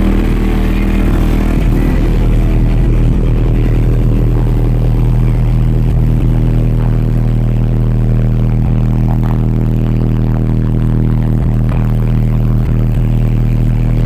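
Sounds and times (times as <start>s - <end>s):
steady low bass note: 0.0s - 14.0s.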